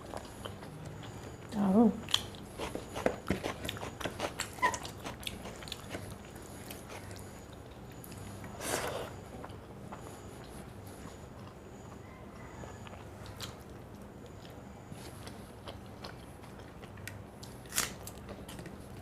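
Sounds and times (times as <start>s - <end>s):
chewing and mouth smacks: 0.0s - 18.8s.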